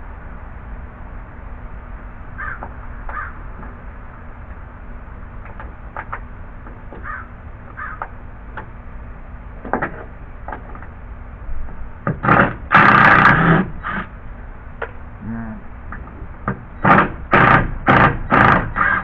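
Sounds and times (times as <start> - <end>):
crow cawing: 2.4 - 3.4, 7.0 - 8.1, 18.8 - 19.0.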